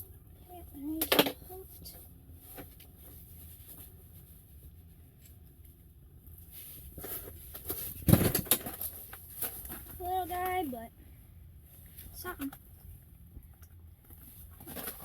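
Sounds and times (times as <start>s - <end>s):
rustling: 1.5s - 10.8s, 14.0s - 15.0s.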